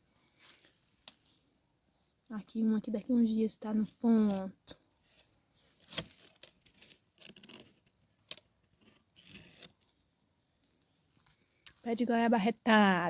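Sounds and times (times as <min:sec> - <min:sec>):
leaves and twigs rustling: 0:00.0 - 0:10.0.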